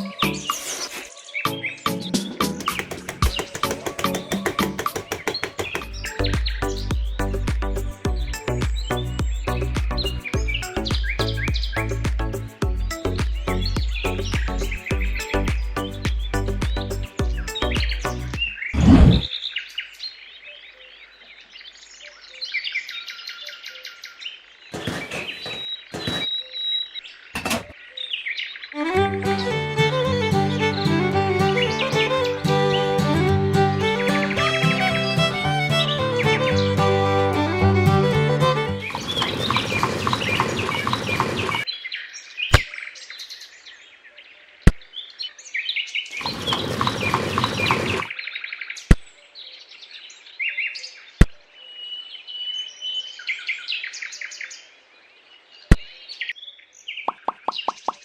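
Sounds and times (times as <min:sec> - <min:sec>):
small birds chirping: 0:00.0 - 0:44.1, 0:44.9 - 0:58.0
sharp knocks: 0:02.4 - 0:06.2.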